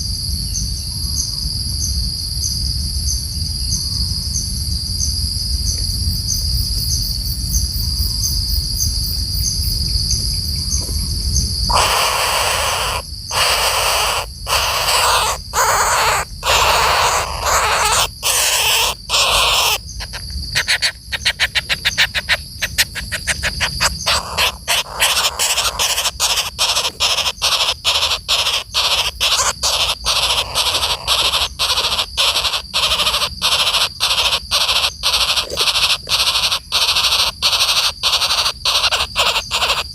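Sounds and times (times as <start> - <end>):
high insect drone: 0.0 - 39.9
woodpecker calling: 11.7 - 39.9.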